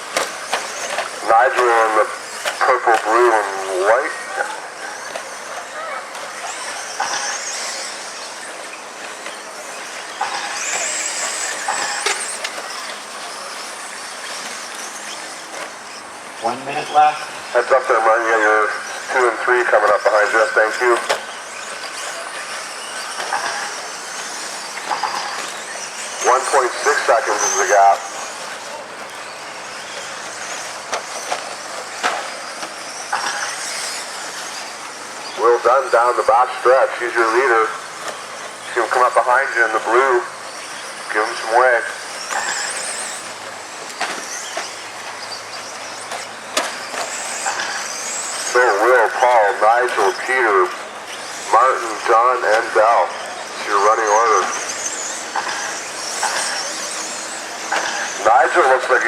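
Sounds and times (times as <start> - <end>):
rc truck motors whining: 0.0 - 59.0
tyres hissing on dirt: 23.0 - 40.2, 41.1 - 59.0.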